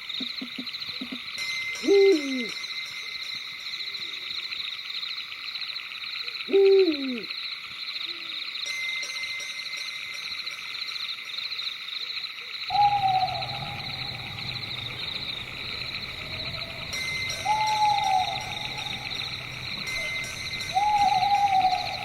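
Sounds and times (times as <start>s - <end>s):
chorus of night creatures: 0.0s - 8.8s, 10.6s - 22.0s
owl hooting: 6.5s - 7.3s, 12.7s - 22.0s.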